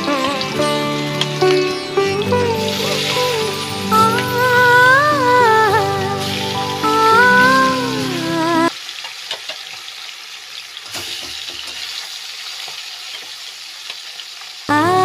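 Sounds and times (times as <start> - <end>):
fish sizzling in hot oil: 0.0 - 4.8, 6.2 - 14.7
music with singing: 0.0 - 8.7.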